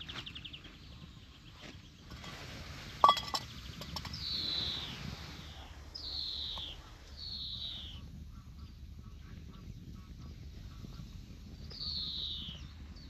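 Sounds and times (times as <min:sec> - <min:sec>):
descending bird calls: 0:03.4 - 0:10.4, 0:11.6 - 0:13.0.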